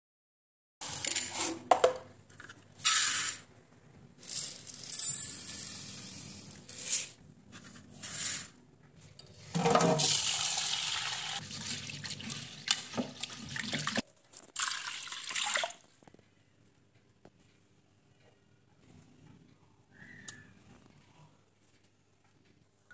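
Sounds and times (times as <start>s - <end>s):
water running into cooker: 9.6s - 14.0s.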